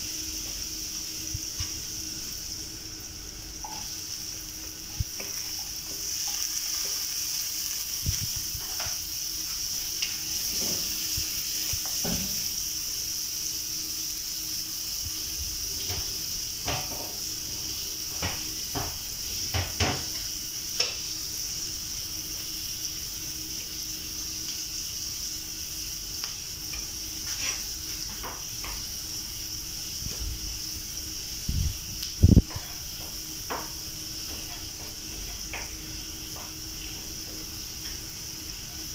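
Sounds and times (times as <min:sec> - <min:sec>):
garlic and onion sizzling in oil: 0:00.0 - 0:38.9.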